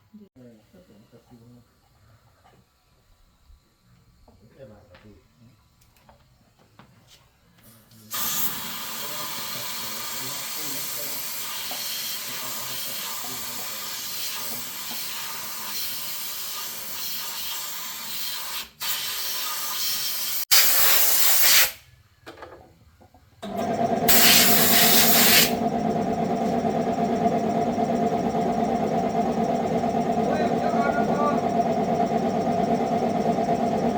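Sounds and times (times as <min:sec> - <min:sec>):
loud hiss: 0:08.1 - 0:16.6, 0:24.1 - 0:25.6
hissing spray: 0:08.1 - 0:21.8, 0:24.1 - 0:25.6
mechanical running noise with hum: 0:23.4 - 0:33.9.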